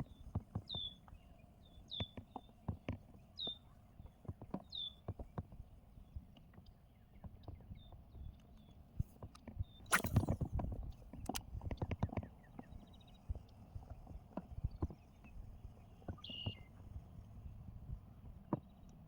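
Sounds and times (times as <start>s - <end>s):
bird chirp: 0.0s - 2.6s, 3.2s - 5.2s, 12.1s - 16.8s
rushing swish: 9.9s - 10.4s.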